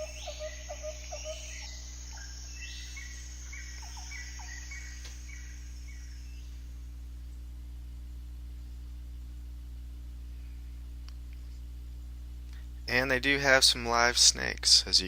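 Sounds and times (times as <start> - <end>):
bird-like calls: 0.0 - 6.7
steady low hum: 0.0 - 15.0.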